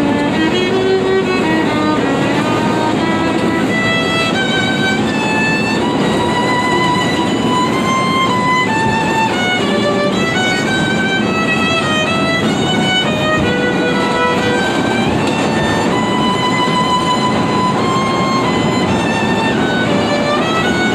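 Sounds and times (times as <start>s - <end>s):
musician playing held-note melody: 0.0s - 20.9s
subway train running: 0.0s - 20.9s.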